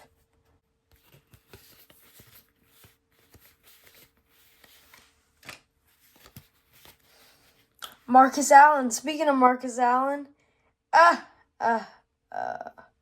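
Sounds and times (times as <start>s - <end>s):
cards clicking and rustling: 0.9s - 8.0s.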